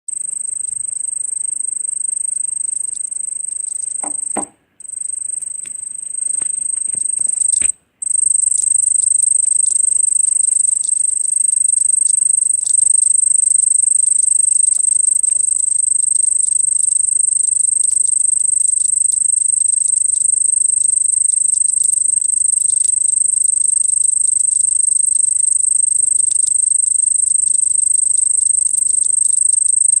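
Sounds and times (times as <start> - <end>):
cricket trilling: 0.1 - 30.0
soft knocks: 4.0 - 4.6.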